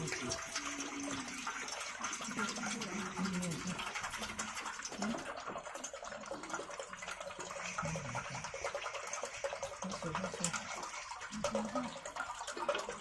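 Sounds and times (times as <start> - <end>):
faint voices: 0.0 - 4.2, 9.6 - 12.9
water pouring: 0.0 - 13.0.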